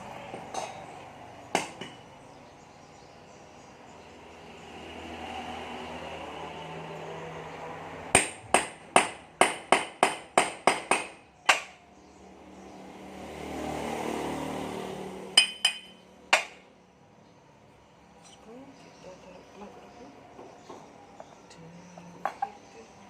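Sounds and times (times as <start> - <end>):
hammer striking metal: 8.1 - 11.8, 15.4 - 16.6.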